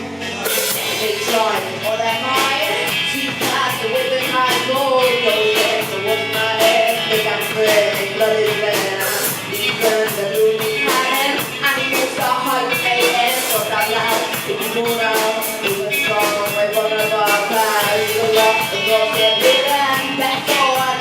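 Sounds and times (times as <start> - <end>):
electric guitar: 0.0 - 21.0
drum kit fast beat: 0.2 - 21.0.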